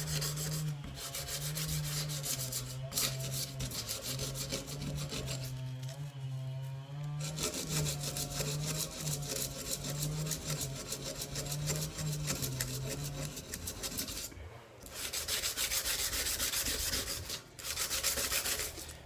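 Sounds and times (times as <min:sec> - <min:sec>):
sandpaper rubbing on steel blade: 0:00.0 - 0:05.9, 0:14.9 - 0:19.0.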